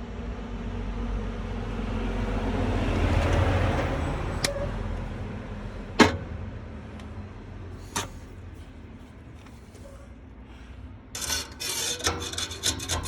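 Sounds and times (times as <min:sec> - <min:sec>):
vehicle passing by: 0:00.1 - 0:08.7.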